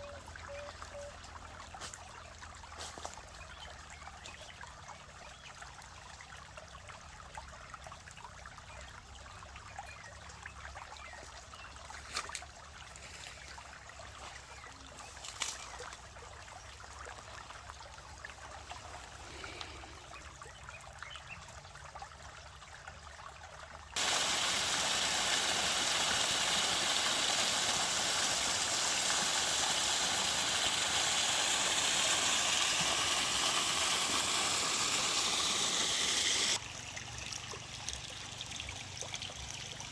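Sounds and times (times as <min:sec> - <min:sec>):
stream water rushing: 0:24.0 - 0:37.4.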